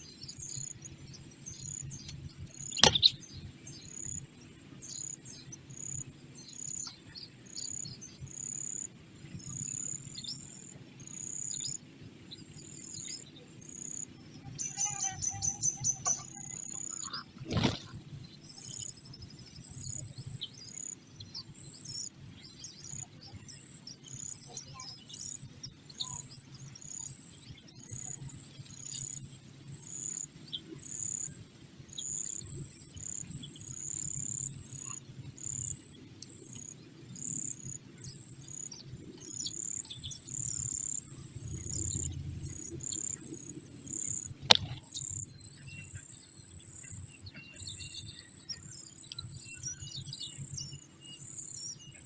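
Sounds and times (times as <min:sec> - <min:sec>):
small birds chirping: 0:00.0 - 0:52.0
sharp click: 0:02.8 - 0:03.2, 0:44.4 - 0:45.0.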